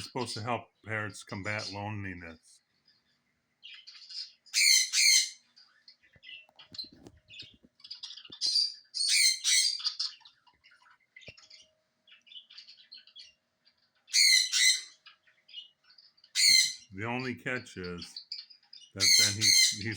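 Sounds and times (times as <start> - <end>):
quiet bird chirps: 0.0 - 19.9
parrot screaming squawks: 4.1 - 5.4, 8.5 - 10.2, 14.1 - 15.1, 16.3 - 16.9, 19.0 - 19.9.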